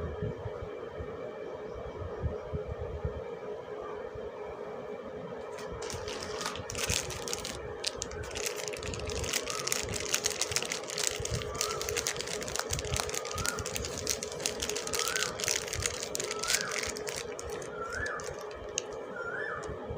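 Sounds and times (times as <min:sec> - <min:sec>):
steady low hum: 0:00.0 - 0:19.9
packaging crinkling: 0:05.5 - 0:19.7.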